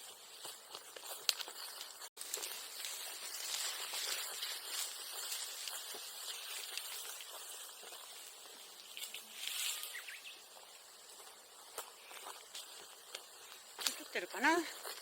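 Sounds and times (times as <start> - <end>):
bonfire burning with crackles: 0.0 - 15.0.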